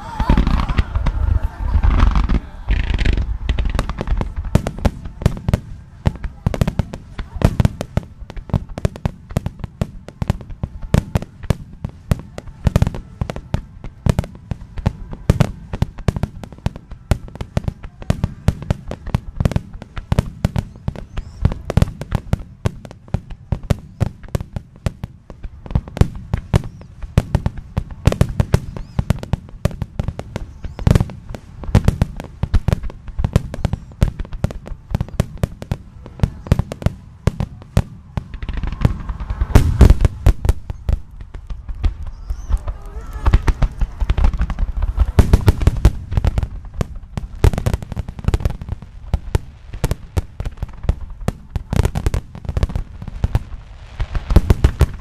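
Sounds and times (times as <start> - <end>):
low rumble: 0.0 - 8.5
fireworks bangs: 0.0 - 55.0.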